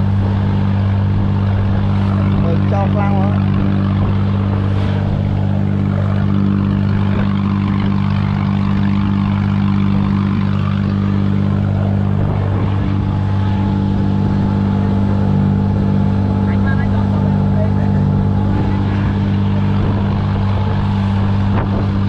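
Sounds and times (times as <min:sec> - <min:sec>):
boat engine droning: 0:00.0 - 0:22.0
water wash from bow wake: 0:00.0 - 0:22.0.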